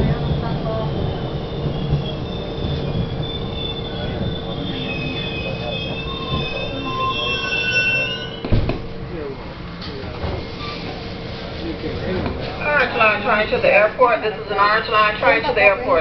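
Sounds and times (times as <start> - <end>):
train car rumble and hum: 0.0 - 16.0
wheels squealing: 1.2 - 8.5.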